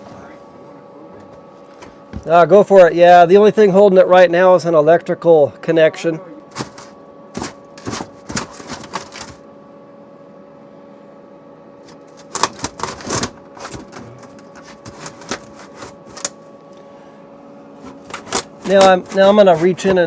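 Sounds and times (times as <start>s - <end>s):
steady hum: 0.0s - 20.0s
knocks and scrapes in metal compartment: 6.5s - 9.4s, 12.1s - 16.3s, 17.8s - 20.0s.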